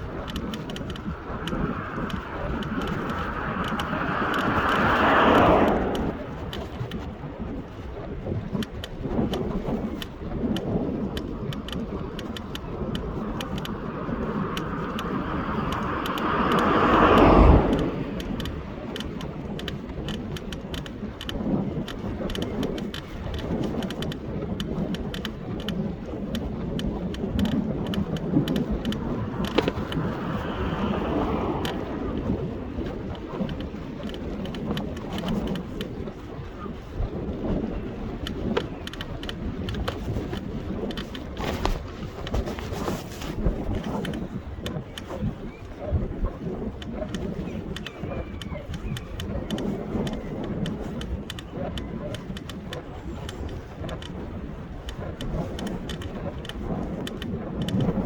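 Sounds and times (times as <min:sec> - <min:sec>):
vehicle passing: 0:00.0 - 0:06.6, 0:12.6 - 0:18.7, 0:28.7 - 0:32.8
outdoor rumble: 0:00.0 - 0:07.1, 0:11.0 - 0:23.7, 0:27.2 - 0:45.0
scattered clicks: 0:00.0 - 0:58.0.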